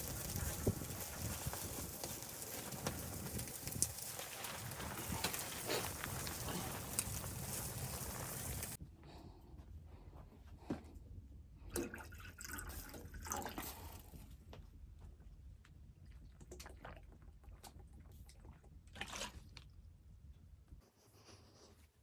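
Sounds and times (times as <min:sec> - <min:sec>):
liquid pouring and dripping: 0:11.7 - 0:14.1.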